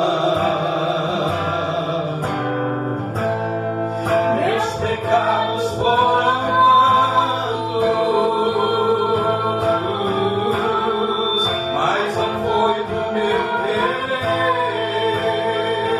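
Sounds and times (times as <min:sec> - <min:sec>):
man singing: 0:00.0 - 0:02.6, 0:04.2 - 0:15.9
guitar accompaniment: 0:00.0 - 0:15.9
woman singing: 0:04.2 - 0:15.9.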